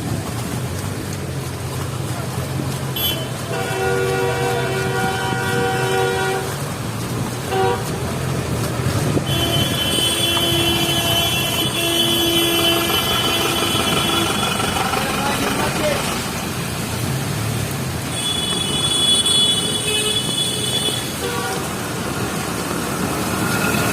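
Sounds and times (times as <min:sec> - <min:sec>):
running engines: 0:00.0 - 0:23.9
vehicle horns honking: 0:02.9 - 0:06.6, 0:07.5 - 0:07.9, 0:09.2 - 0:15.1, 0:18.1 - 0:21.8.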